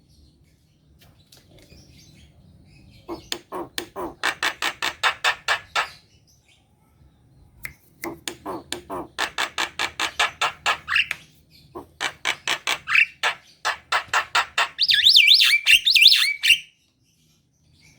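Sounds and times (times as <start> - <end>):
bird chattering and whistling: 3.0 - 6.0, 8.0 - 16.8.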